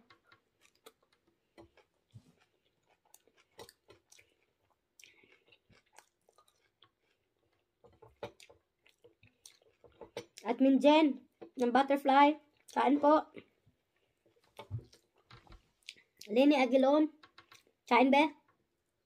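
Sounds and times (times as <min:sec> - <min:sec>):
chewing food: 0:00.0 - 0:10.6, 0:12.4 - 0:16.3.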